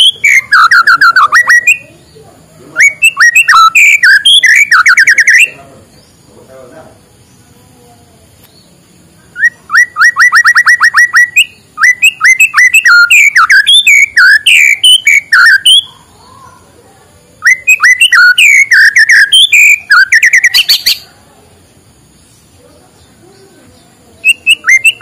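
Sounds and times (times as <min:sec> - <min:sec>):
bird singing whistled phrases: 0:00.0 - 0:02.0, 0:02.7 - 0:05.6, 0:09.3 - 0:16.4, 0:17.4 - 0:21.0, 0:24.2 - 0:25.0.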